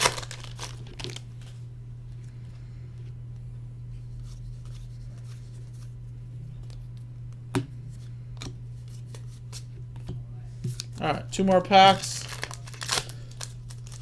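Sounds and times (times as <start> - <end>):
trading cards rustling and clicking: 0.0 - 1.5, 10.6 - 14.0
steady low hum: 0.0 - 14.0.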